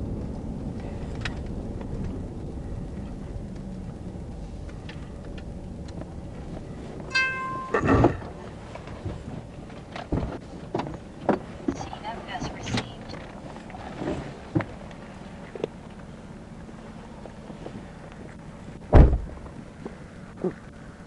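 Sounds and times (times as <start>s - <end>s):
engine and road rumble: 0.0s - 21.0s
short electronic beep: 7.1s - 8.1s
loud thump: 18.9s - 19.3s.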